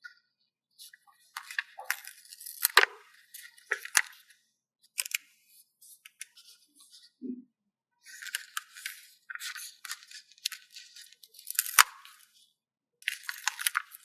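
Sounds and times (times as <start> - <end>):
paper stickers rustling: 8.1 - 12.2, 13.1 - 14.0.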